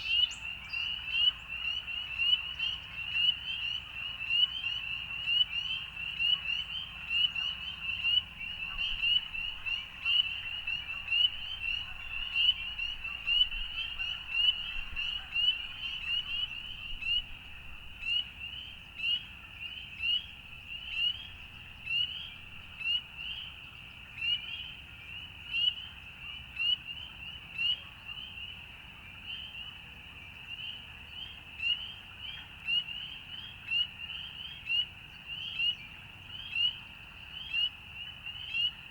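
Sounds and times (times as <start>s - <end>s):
frogs peeping: 0.0s - 23.6s
low frog chorus: 0.0s - 26.3s.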